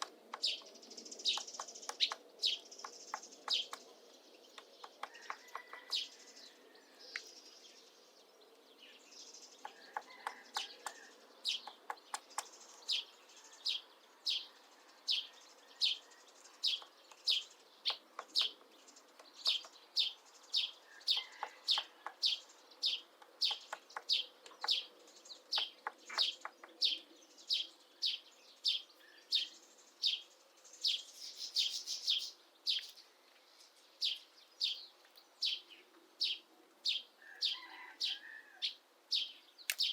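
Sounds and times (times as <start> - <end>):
woodpecker tapping wood: 0.0 - 0.7, 1.3 - 3.9, 4.6 - 6.0, 9.6 - 12.6, 16.7 - 19.8, 21.2 - 22.3, 23.0 - 24.8, 25.5 - 26.8.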